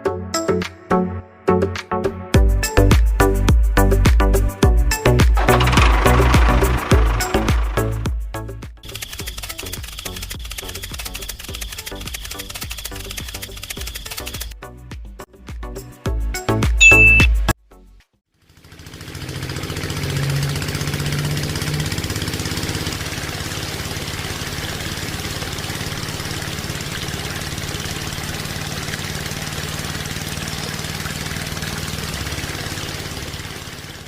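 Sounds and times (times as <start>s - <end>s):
engine running with rapid knock: 5.0s - 8.2s, 8.8s - 14.5s, 18.4s - 34.0s.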